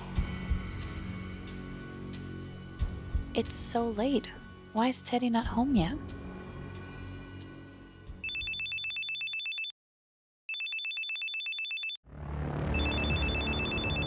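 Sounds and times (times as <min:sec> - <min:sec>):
telephone ringing: 0:08.2 - 0:09.7, 0:10.5 - 0:12.0.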